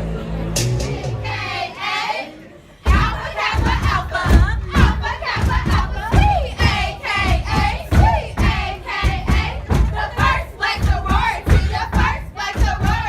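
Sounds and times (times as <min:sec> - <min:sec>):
crowd shouting and singing: 0:00.0 - 0:13.0
thumping beat: 0:02.9 - 0:13.0.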